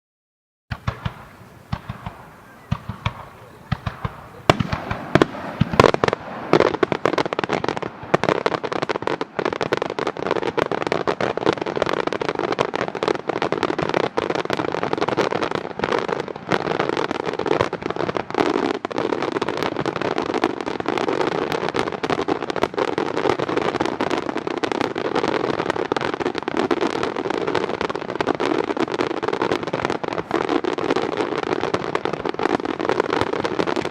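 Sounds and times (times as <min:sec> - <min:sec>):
fireworks bangs and crackle: 0:00.7 - 0:33.9.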